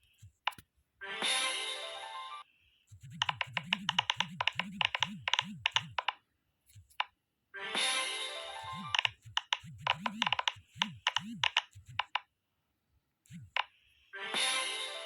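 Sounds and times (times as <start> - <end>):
fidget toy bubbles popping: 3.0 - 6.2, 8.7 - 12.2.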